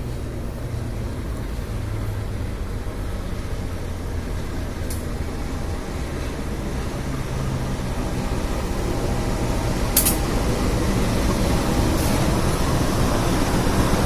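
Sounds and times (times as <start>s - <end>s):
train wheels and engine rumbling: 0.0s - 14.0s
short sharp click: 10.0s - 10.2s.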